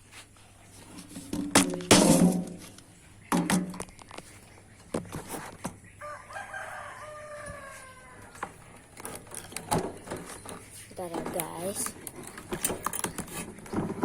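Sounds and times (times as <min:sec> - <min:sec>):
rooster crowing: 0:06.0 - 0:08.7.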